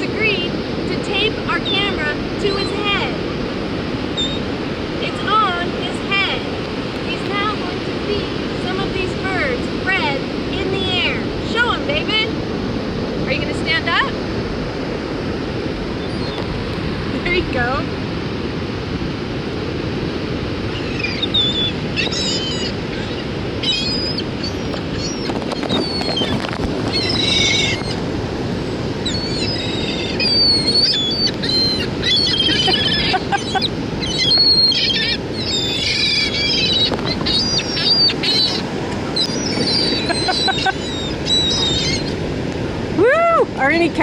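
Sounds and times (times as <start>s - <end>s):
surf and wind: 0.0s - 44.0s
seagulls squawking: 4.1s - 12.2s, 16.0s - 16.5s, 20.7s - 42.4s.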